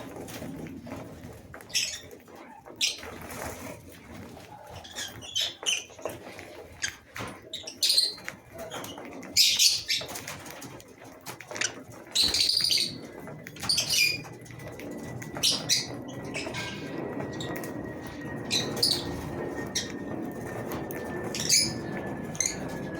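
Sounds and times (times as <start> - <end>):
lovebirds chirping shrilly: 12.1 - 13.0, 13.6 - 14.3, 18.4 - 20.0, 21.2 - 22.7.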